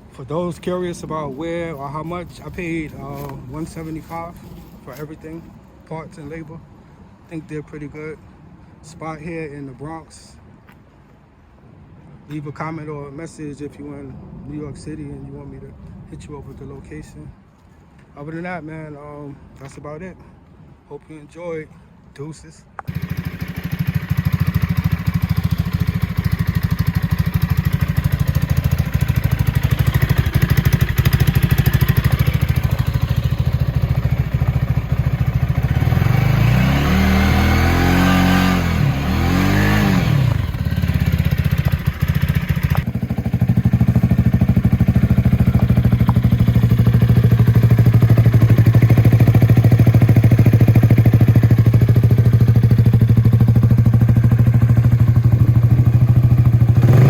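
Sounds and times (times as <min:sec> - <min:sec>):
motorcycle engine revving: 0:22.9 - 0:57.0.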